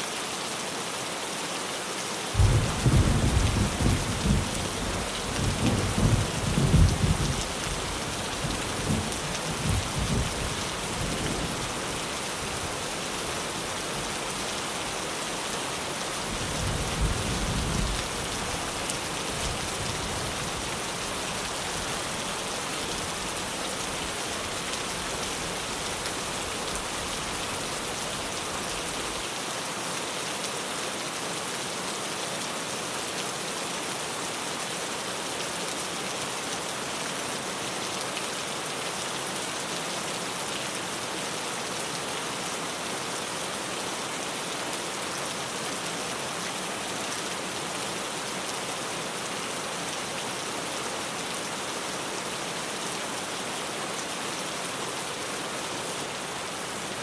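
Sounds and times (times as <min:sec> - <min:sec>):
heavy rain on a tin roof: 0:00.0 - 0:57.0
thunder rumbling: 0:02.4 - 0:11.6.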